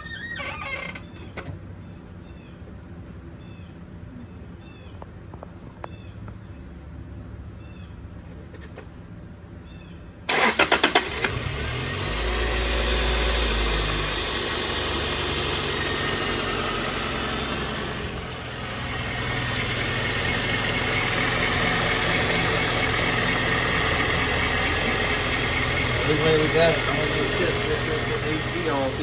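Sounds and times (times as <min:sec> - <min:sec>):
car engine idling: 0:01.6 - 0:09.6, 0:10.3 - 0:29.0
starter cranking engine: 0:10.3 - 0:29.0.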